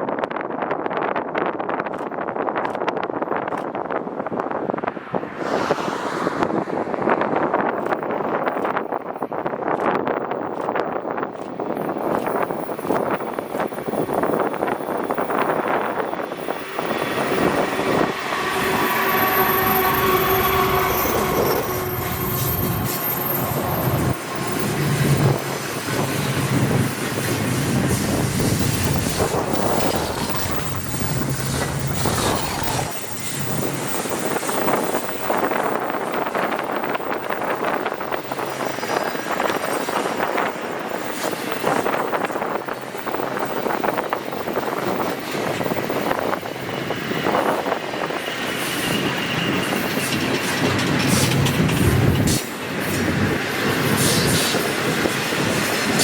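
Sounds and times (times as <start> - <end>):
freight cars rolling: 11.5 - 43.1, 45.0 - 56.0
locomotive engine drone: 13.8 - 34.3
held tones: 14.9 - 25.6.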